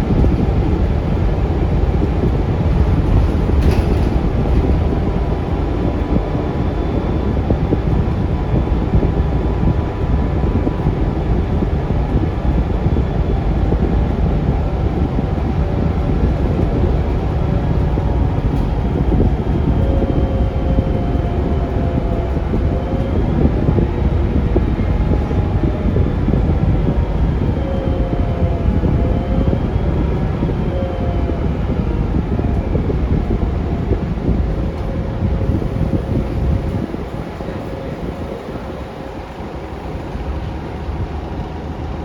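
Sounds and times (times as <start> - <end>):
bus engine rumbling: 0.0 - 42.0
faint whine: 0.0 - 42.0.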